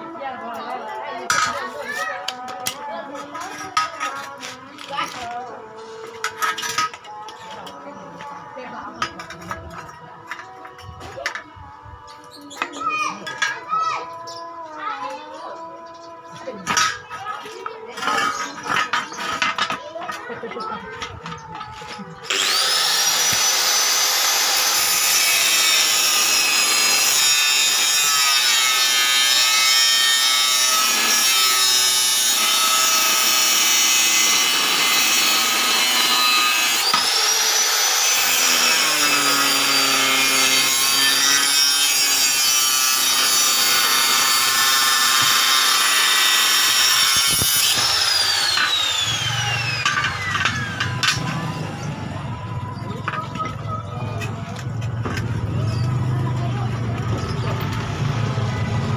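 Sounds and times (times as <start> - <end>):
power tool grinding: 21.3 - 53.2.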